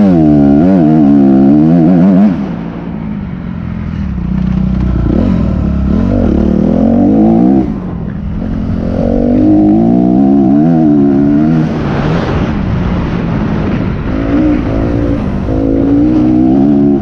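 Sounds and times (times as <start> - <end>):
motocross bike engine: 0.0 - 17.0.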